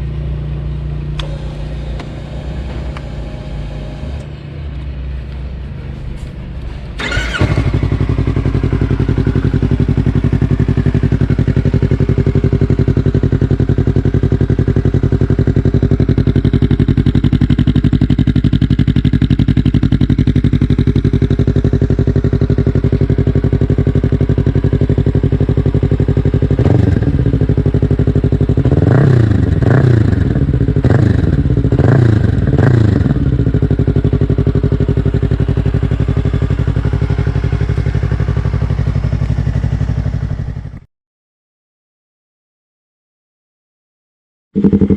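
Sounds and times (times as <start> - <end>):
motorcycle engine idling and revving: 0.0 - 40.9, 44.6 - 44.9.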